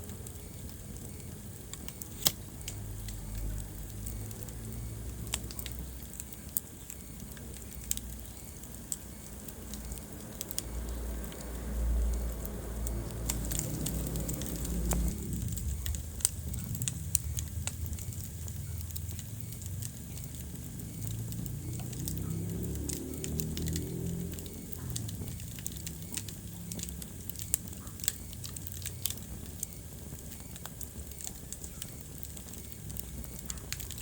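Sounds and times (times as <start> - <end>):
fire crackles and pops: 0.0 - 34.0
rumble of fire flames: 0.0 - 34.0.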